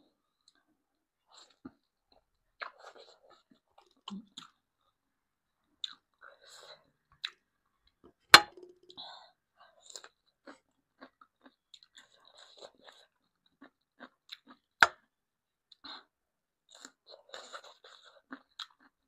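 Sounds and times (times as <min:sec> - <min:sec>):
person chewing noodles: 0:05.8 - 0:07.4, 0:09.8 - 0:15.0, 0:16.7 - 0:19.0.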